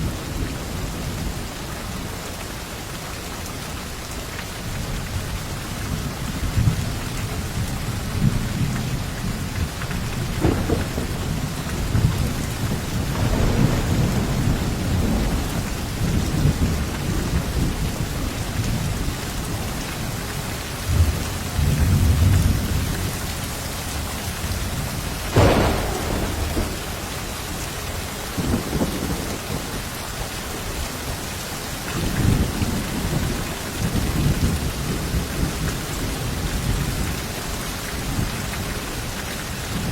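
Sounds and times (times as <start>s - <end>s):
heavy rain: 0.0s - 39.9s
thunder rumbling: 7.9s - 19.6s, 24.0s - 29.9s
sharp thunderclap: 10.2s - 17.9s, 25.2s - 29.8s.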